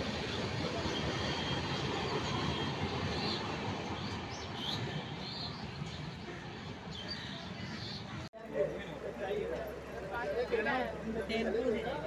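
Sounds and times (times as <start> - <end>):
train wheels rumbling on track: 0.0 - 7.6.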